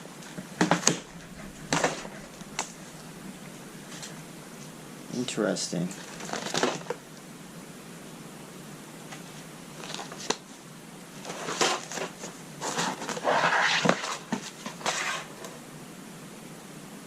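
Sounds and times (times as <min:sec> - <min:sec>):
knocks and rustling of objects: 0:00.0 - 0:04.2.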